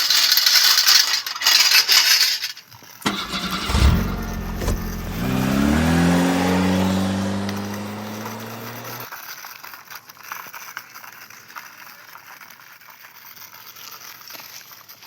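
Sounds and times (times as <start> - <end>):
light rattling and scraping: 0.2 - 9.0
engine-like drone: 3.1 - 9.1.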